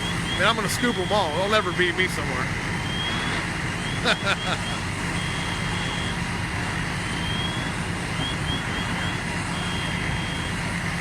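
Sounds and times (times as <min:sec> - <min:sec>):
fire truck engines droning: 0:00.0 - 0:11.0.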